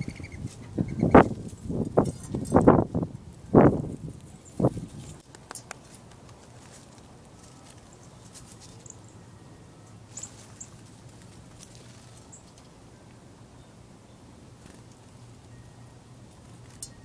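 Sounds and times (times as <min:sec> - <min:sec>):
songbirds chip calls: 0:00.0 - 0:01.4
steady low hum: 0:00.0 - 0:17.0.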